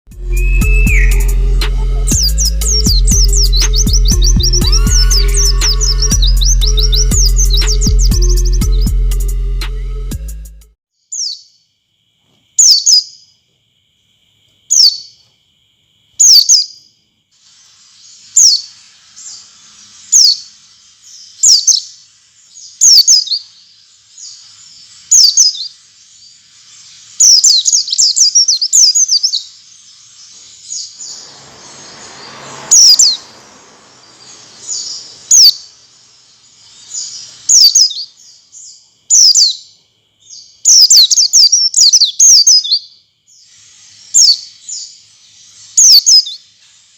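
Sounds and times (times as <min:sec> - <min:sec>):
bird high sharp chirps: 0:00.1 - 0:09.0, 0:16.2 - 0:16.8, 0:17.4 - 0:46.9
faint high hiss: 0:17.0 - 0:39.3, 0:43.2 - 0:46.9
low rushing noise: 0:30.9 - 0:37.1.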